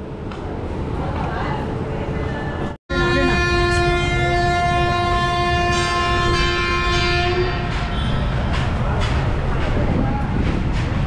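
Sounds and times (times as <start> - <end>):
train rumble: 0.0 - 11.0
train horn blast: 2.9 - 8.6.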